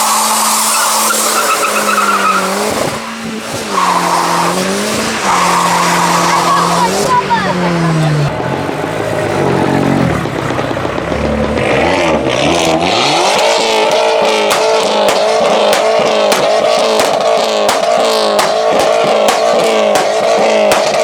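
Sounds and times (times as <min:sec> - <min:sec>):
car engine revving: 0:00.0 - 0:21.0
sharp cracks: 0:13.3 - 0:21.0.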